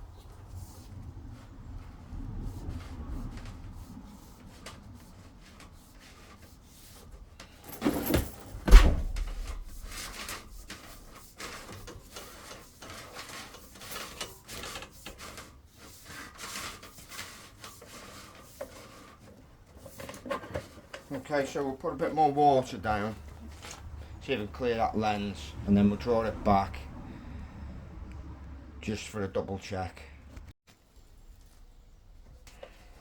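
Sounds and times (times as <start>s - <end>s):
heavy thumps: 7.6s - 10.7s.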